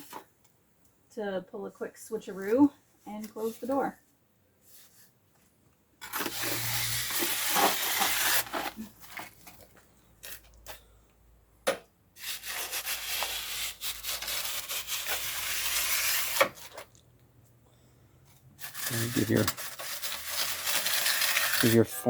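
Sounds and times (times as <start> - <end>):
tool scraping gritty mortar: 6.0 - 9.2, 12.2 - 16.9, 18.6 - 22.0.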